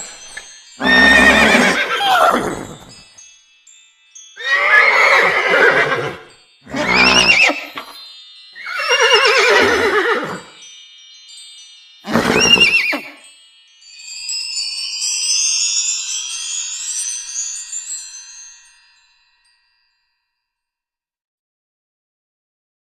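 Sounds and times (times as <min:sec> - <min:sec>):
shimmering chime sweep: 0:00.0 - 0:20.2
warbling horse-like whinnies: 0:00.8 - 0:02.9, 0:04.4 - 0:07.9, 0:08.6 - 0:10.5, 0:12.1 - 0:13.2.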